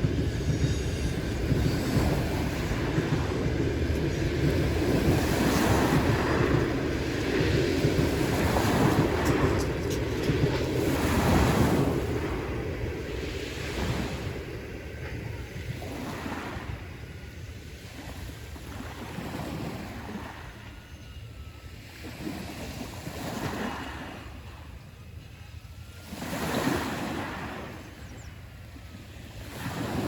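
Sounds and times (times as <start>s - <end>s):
wind rumble on microphone: 0.0s - 20.7s
waves breaking on shore: 1.1s - 17.2s, 17.8s - 20.8s, 21.8s - 24.8s, 25.9s - 30.0s.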